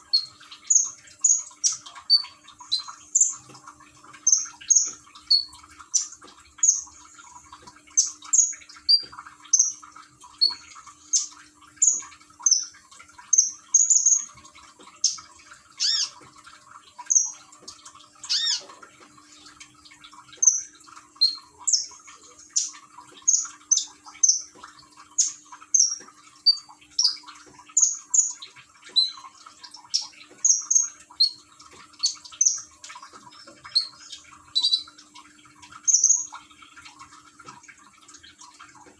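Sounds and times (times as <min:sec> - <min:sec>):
water trickling: 0:00.0 - 0:38.9
bird chirping: 0:15.8 - 0:16.2, 0:18.2 - 0:18.7, 0:25.2 - 0:31.4, 0:33.6 - 0:34.9.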